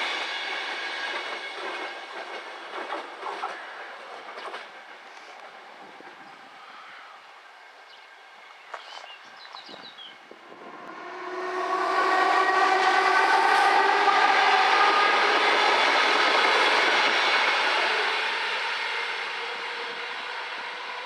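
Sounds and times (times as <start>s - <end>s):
train passing: 0.0s - 21.0s
steady whining tones: 10.2s - 20.9s.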